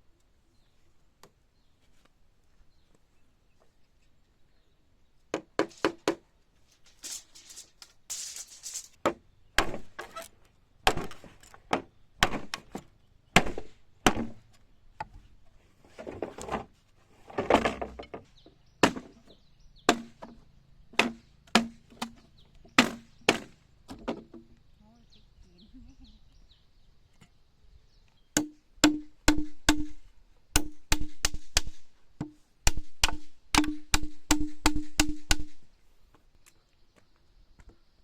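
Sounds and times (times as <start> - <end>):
rustling: 5.7 - 9.0
chopping and knocking strikes: 9.0 - 10.1, 10.9 - 12.8, 13.4 - 14.4, 18.8 - 19.2, 19.9 - 20.4, 21.0 - 22.2, 22.8 - 24.4, 28.4 - 30.0, 30.6 - 35.5.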